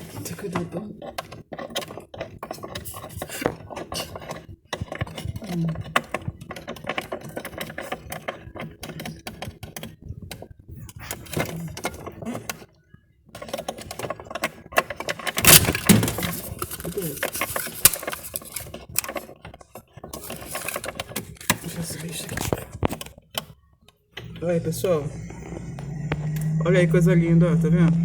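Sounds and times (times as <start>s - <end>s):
plastic parts clicking and clattering: 0.0s - 12.7s, 13.3s - 23.6s.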